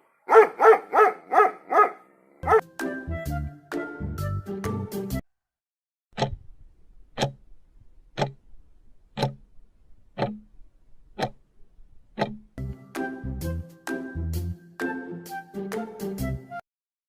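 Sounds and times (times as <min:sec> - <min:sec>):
clock ticking: 0:06.2 - 0:06.5, 0:07.2 - 0:07.5, 0:08.1 - 0:08.5, 0:09.1 - 0:09.5, 0:10.1 - 0:11.4, 0:12.2 - 0:12.6.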